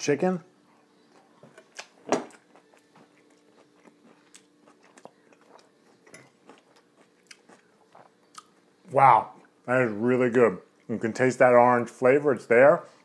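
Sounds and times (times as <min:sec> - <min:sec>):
person chewing food: 0:01.0 - 0:08.8.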